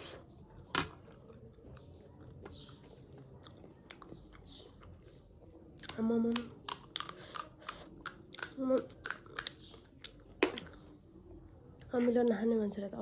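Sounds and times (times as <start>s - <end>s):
person chewing: 1.3s - 10.8s.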